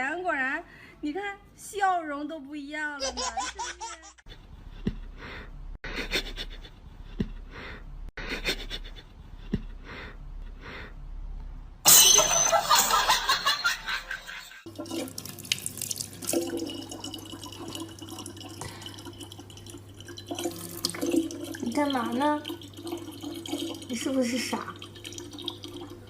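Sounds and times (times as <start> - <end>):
water running from a tap: 14.6 - 26.0.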